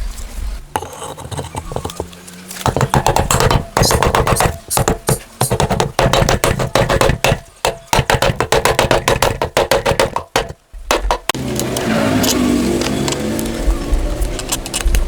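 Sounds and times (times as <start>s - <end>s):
steady running sound: 0.6s - 11.4s
sharp knocks and taps on metal: 0.8s - 11.4s.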